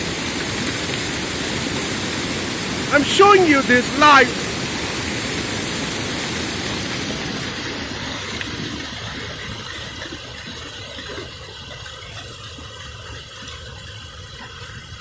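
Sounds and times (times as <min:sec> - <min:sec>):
waterfall rushing over rocks: 0:00.0 - 0:09.5.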